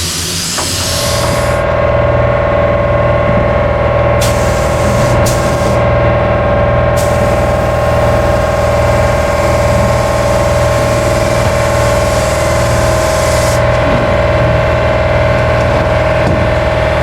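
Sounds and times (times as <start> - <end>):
paint spray gun hissing: 0.0 - 1.6, 4.2 - 5.8, 7.0 - 13.6
steady hum: 0.0 - 17.0.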